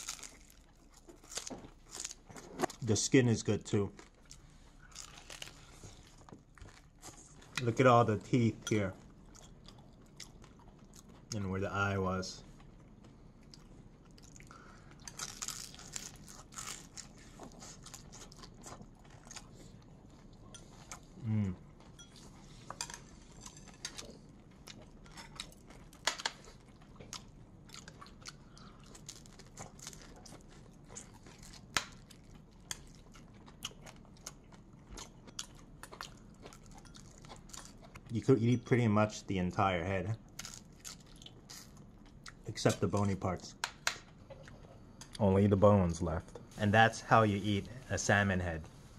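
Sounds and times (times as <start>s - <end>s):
chewing crispy fish: 0.0s - 3.0s, 3.6s - 7.6s, 9.2s - 11.4s, 12.4s - 38.2s, 40.3s - 43.1s.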